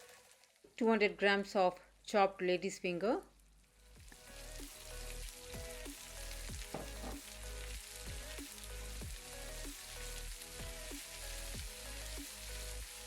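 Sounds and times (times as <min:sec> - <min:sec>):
okra sizzling in hot oil: 0:00.0 - 0:02.2, 0:02.9 - 0:13.0.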